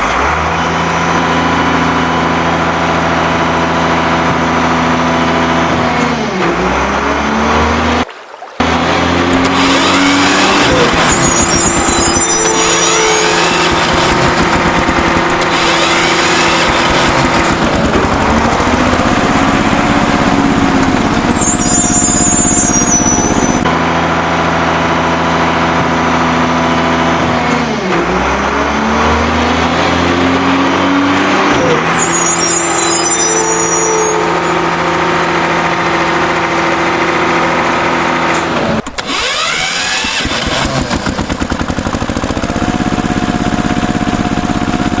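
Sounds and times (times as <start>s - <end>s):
vehicle engine running: 0.0s - 45.0s
high chirping: 10.7s - 15.2s, 21.1s - 23.7s, 31.8s - 34.9s.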